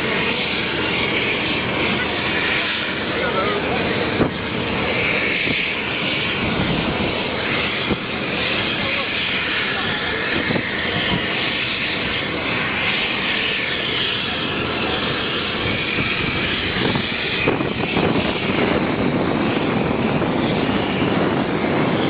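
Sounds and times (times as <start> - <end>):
jet engines rushing in flight: 0.0 - 22.0.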